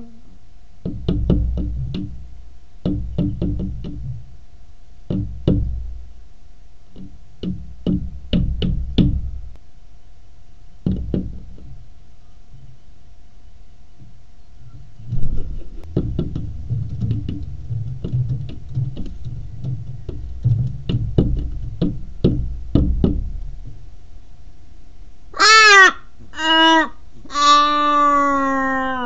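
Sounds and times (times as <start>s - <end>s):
bird tapping on glass: 0.8s - 2.2s, 2.8s - 4.2s, 5.1s - 5.8s, 6.9s - 9.3s, 10.8s - 11.8s, 15.2s - 23.4s
raven calling harshly: 25.3s - 29.0s.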